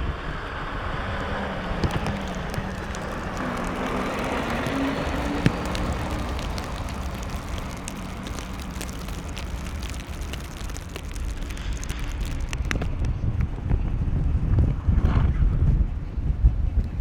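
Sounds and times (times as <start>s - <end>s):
traffic noise: 1.3s - 13.1s
wind rumble: 1.5s - 15.3s.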